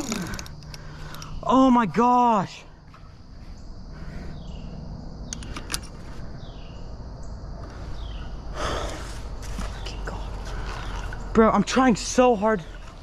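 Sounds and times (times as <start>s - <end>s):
sharp clicks: 0.0s - 1.4s, 5.2s - 6.0s
steady low rumble and hiss: 0.0s - 13.0s.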